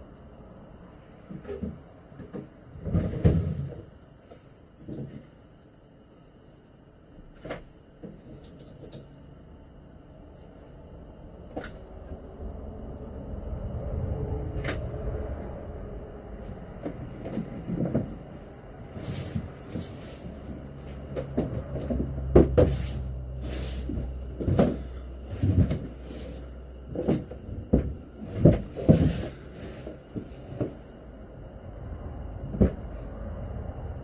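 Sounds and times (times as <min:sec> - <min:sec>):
low steady hum: 0:00.0 - 0:34.0
metal tools knocking and clunking: 0:08.1 - 0:09.2.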